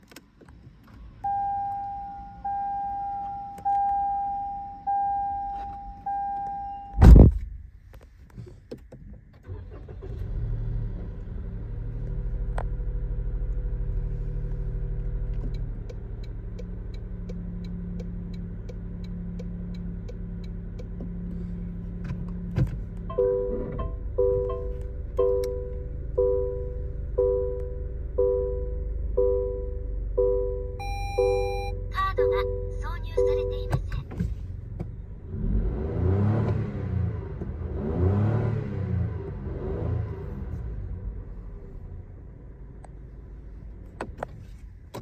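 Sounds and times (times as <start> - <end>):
car engine cranking and idling: 0.0 - 45.0
sharp loud thump: 7.0 - 7.7
electronic chimes: 30.8 - 31.8.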